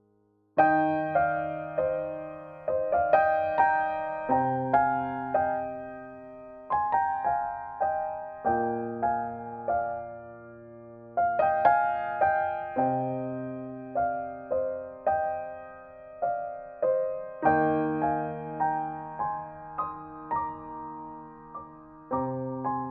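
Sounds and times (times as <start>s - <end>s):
gentle piano playing: 0.0s - 22.9s.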